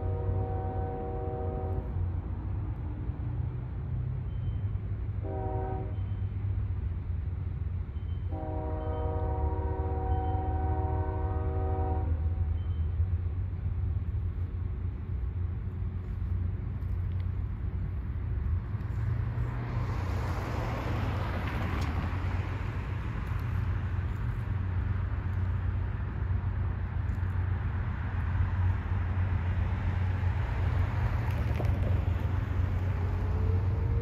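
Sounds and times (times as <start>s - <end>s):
train air horn blasts: 0.0s - 2.0s, 5.2s - 6.2s, 8.3s - 12.6s
freight cars rumbling past: 0.0s - 34.0s.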